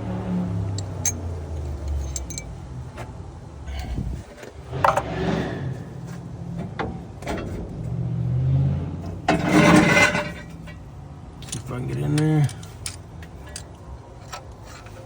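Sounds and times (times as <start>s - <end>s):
metal tools clinking: 0.8s - 2.6s, 11.4s - 15.0s.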